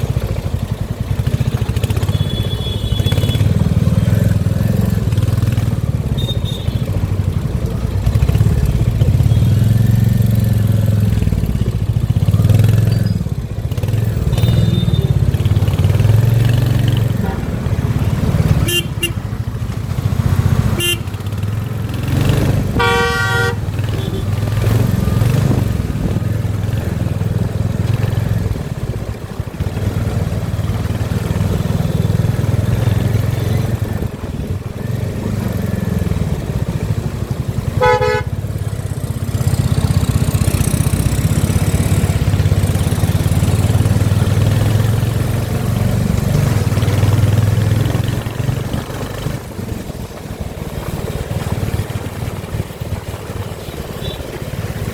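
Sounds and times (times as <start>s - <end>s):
motorcycle engine running: 0.0s - 54.9s
vehicle horn: 2.1s - 3.5s, 17.2s - 17.7s, 18.5s - 19.4s, 20.7s - 21.3s, 22.7s - 24.4s, 37.8s - 38.4s.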